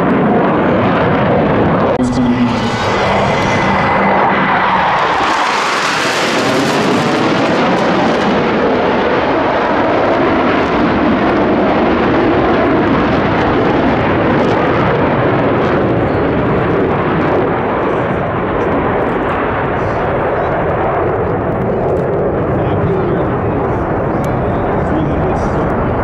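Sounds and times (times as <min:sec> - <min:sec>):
fighter jets flying past: 0:00.0 - 0:26.0.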